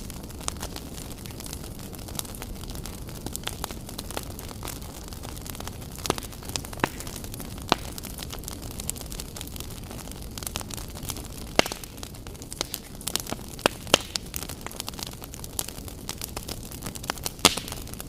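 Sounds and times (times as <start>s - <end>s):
low rumble of burning: 0.0s - 18.0s
wood fire pops and snaps: 0.0s - 18.0s.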